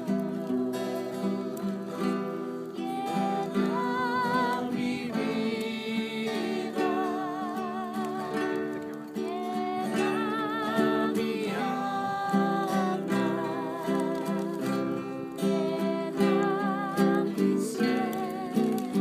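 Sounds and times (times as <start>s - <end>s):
acoustic guitar strumming: 0.0s - 19.0s
person singing: 0.0s - 19.0s.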